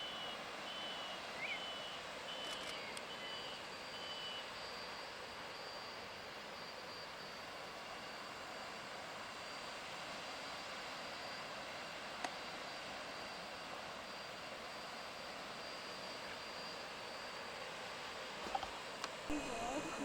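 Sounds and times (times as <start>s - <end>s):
small click: 2.4s - 3.1s.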